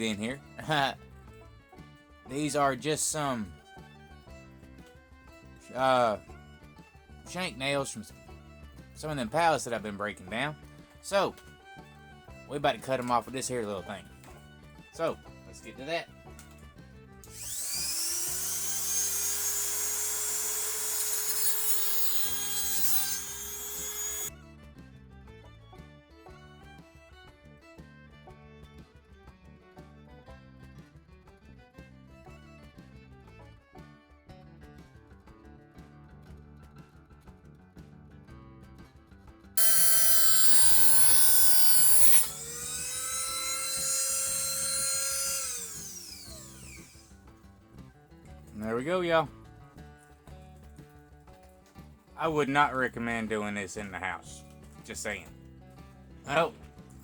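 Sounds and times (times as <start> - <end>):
power cutting tool grinding metal: 17.3 - 24.3, 39.6 - 47.1.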